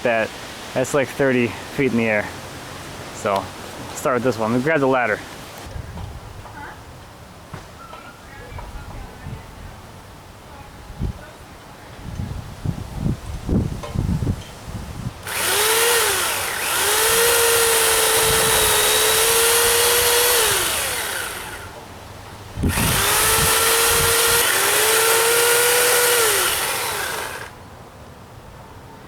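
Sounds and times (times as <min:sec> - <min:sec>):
electric chainsaw cutting: 0:15.2 - 0:21.9, 0:22.6 - 0:27.6.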